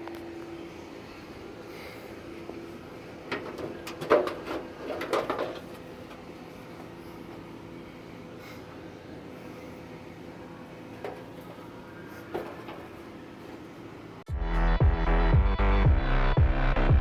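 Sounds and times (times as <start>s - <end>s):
steady low hum: 0.0s - 17.0s
knocks and rattles of tools: 3.2s - 6.3s, 12.2s - 13.1s.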